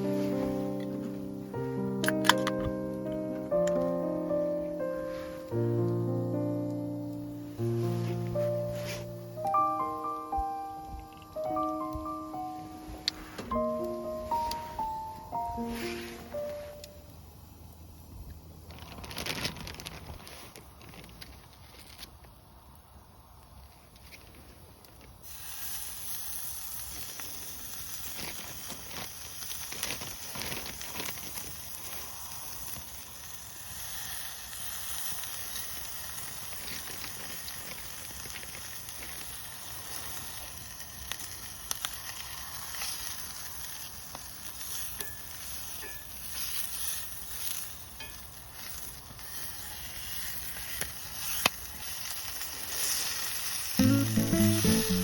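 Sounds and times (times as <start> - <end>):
sharp fire crackles: 0.0 - 12.1, 13.0 - 55.0
food sizzling in a pan: 25.2 - 55.0.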